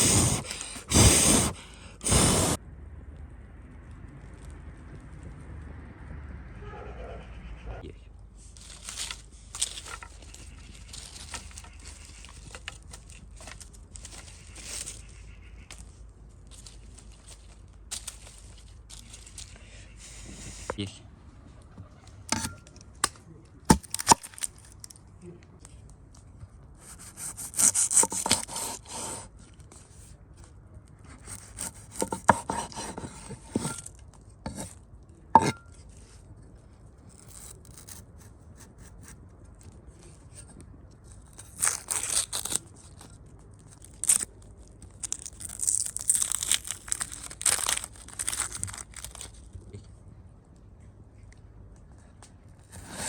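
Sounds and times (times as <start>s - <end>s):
crisp rustling and tearing: 8.3s - 20.2s, 23.7s - 25.9s, 36.8s - 38.3s, 39.3s - 49.8s.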